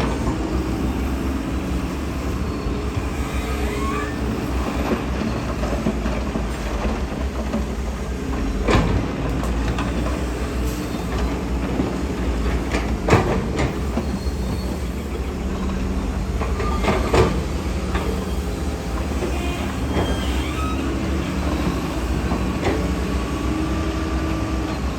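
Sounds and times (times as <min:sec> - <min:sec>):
diesel engine under load: 0:00.0 - 0:24.9
steel tracks clanking and squealing: 0:00.0 - 0:24.9.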